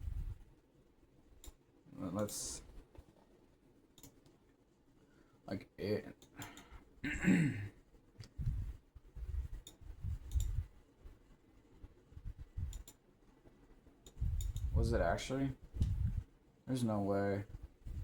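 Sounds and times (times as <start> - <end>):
computer mouse clicks: 1.4 - 1.6, 3.9 - 4.4, 6.2 - 6.8, 9.4 - 10.7, 12.6 - 13.0, 14.0 - 14.8
soft low thumps: 8.2 - 10.7, 15.6 - 16.3.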